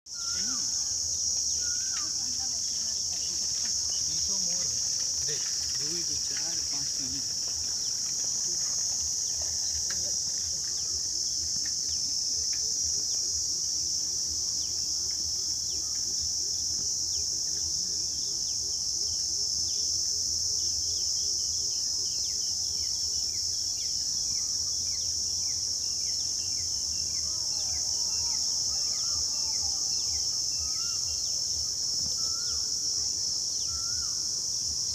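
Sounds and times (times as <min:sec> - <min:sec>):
wavering bird calls: 0:00.1 - 0:03.4
insect chorus: 0:00.1 - 0:34.9.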